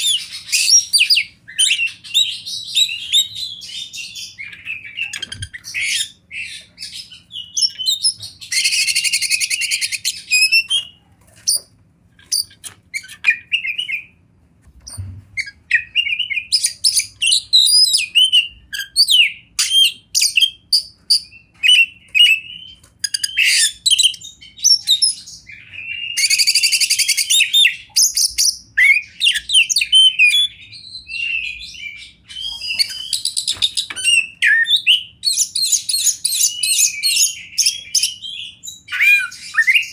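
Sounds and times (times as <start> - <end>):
bird singing whistles and chirps: 12.3 - 14.2, 14.9 - 39.9.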